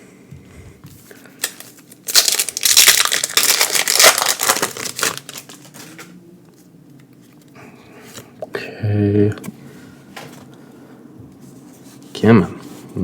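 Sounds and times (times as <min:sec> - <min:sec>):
foil wrapper crinkling: 0:01.4 - 0:06.1.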